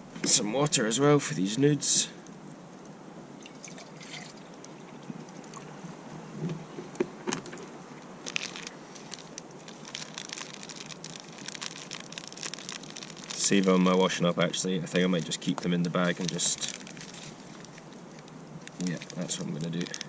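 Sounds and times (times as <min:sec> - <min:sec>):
water pouring and sloshing: 0:03.4 - 0:05.8.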